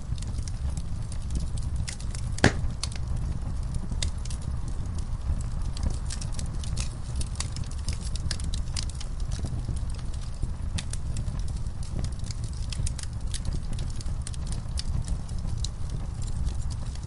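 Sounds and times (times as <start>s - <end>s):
low rumble of flames: 0.0s - 17.0s
wood fire crackling: 0.0s - 17.0s
loud pop of fire: 2.0s - 3.2s.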